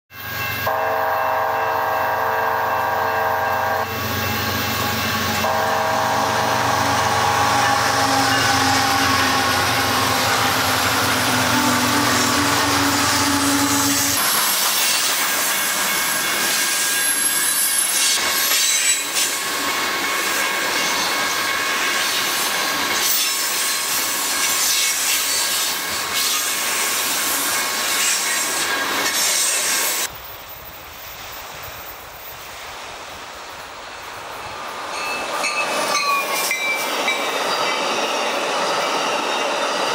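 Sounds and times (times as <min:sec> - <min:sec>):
train horn blasts: 0:00.1 - 0:04.2, 0:04.8 - 0:14.2
train wheels clattering on rails: 0:07.1 - 0:30.0, 0:34.7 - 0:39.9.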